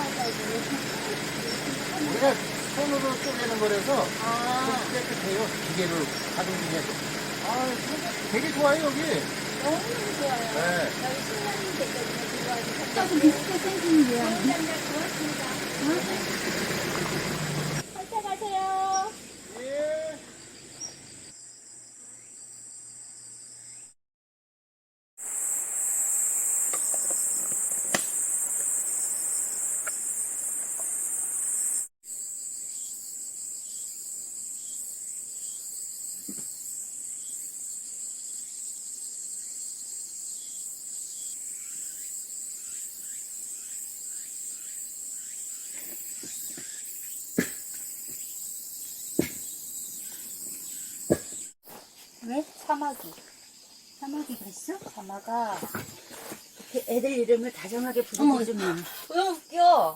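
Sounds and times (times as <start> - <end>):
insects chorus: 0.0 - 24.0, 25.2 - 59.9
sharp knocks: 51.1 - 51.5.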